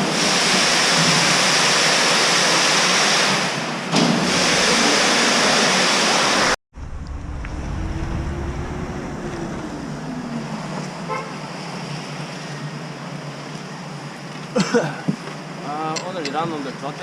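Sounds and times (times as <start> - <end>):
loud steady rushing noise: 4.3 - 14.0
low engine rumble: 6.7 - 13.6.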